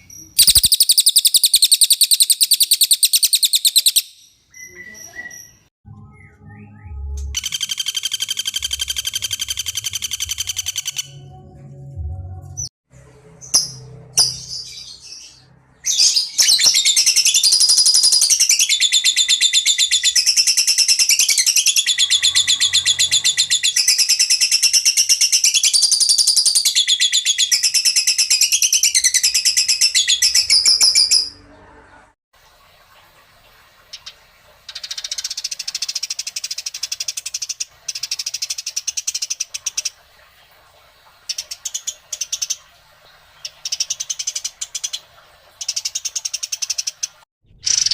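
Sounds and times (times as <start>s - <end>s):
songbird trilling: 0.2s - 5.6s.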